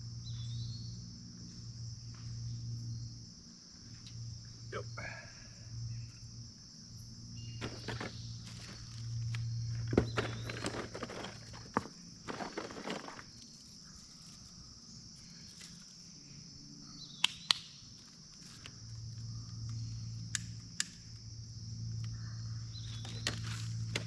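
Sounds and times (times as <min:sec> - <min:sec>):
insects chorus: 0:00.0 - 0:24.0
footsteps and rustling on ground: 0:07.6 - 0:16.0.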